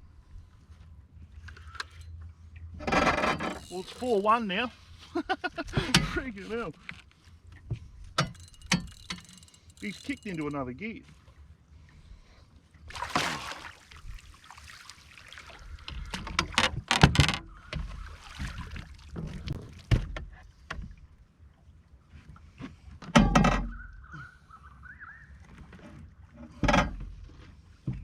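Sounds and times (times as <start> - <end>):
fish splashing and thrashing: 8.2 - 10.6, 12.8 - 19.9.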